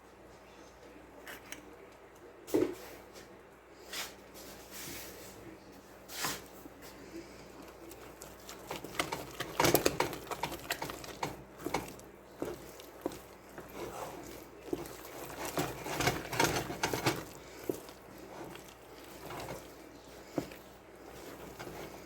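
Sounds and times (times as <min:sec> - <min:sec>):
wooden spoon knocking a pan: 0:08.7 - 0:22.0.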